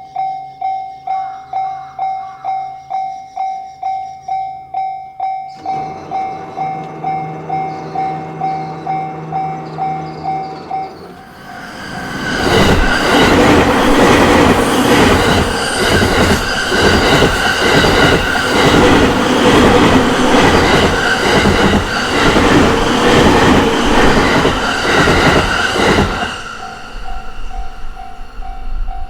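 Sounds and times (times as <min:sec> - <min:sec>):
level crossing bell: 0:00.0 - 0:11.2
electric train passing: 0:05.3 - 0:29.0
wheel clacks over rail joints: 0:05.6 - 0:27.2
steady train whine: 0:05.6 - 0:29.0.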